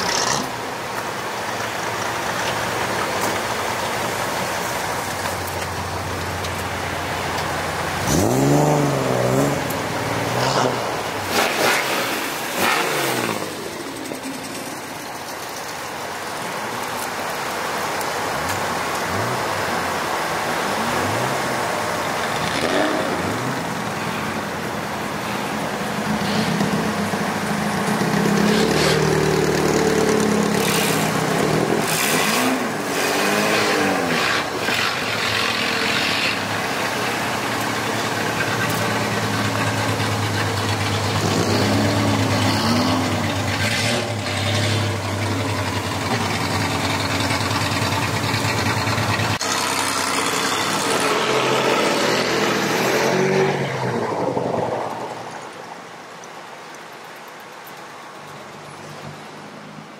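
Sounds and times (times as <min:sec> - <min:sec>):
car engines running: 0:00.0 - 0:59.9.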